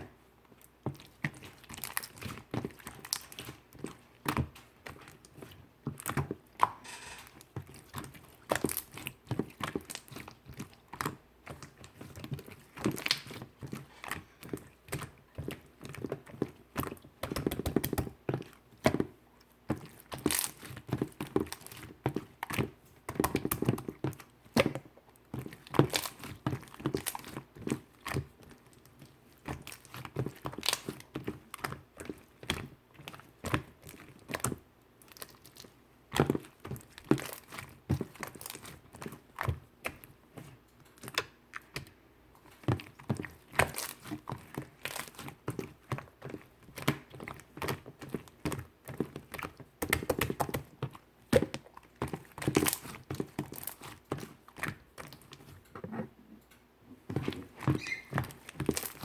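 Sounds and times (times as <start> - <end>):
slime squeezed by hand: 57.2 - 59.0.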